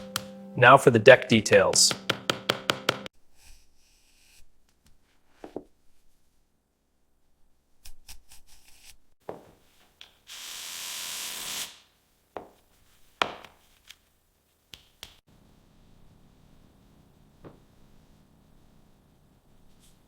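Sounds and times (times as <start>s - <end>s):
tools tapping and clicking: 1.3s - 3.1s
steady hiss: 10.3s - 12.1s.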